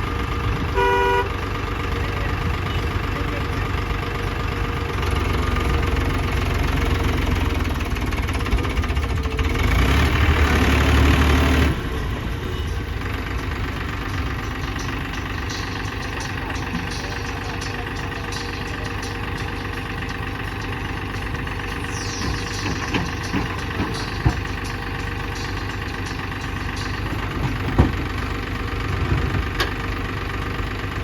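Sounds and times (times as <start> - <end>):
heavy diesel engine running: 0.0 - 31.0.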